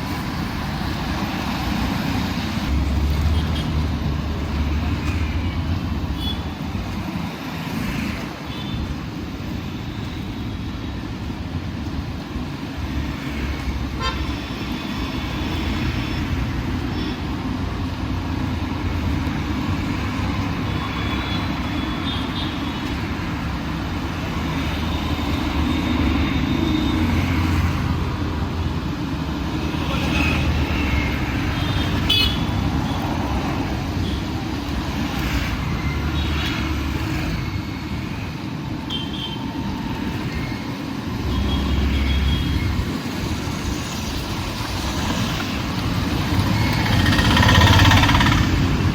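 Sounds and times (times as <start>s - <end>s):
city road traffic rumble: 0.0s - 48.9s
vehicle horns tooting: 14.0s - 14.5s, 31.6s - 32.5s.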